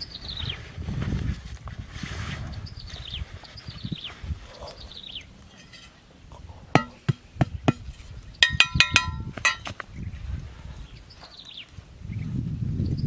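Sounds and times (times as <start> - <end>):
sharp knocks with ringing tone: 6.8 - 9.7.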